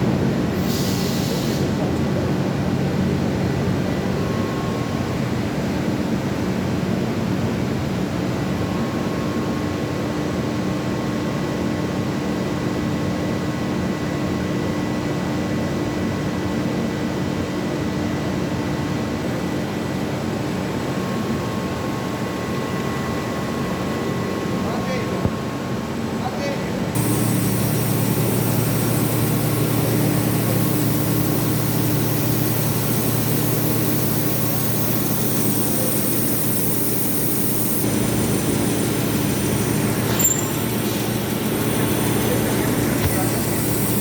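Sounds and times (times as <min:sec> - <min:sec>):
processing machine running: 0:27.0 - 0:44.0.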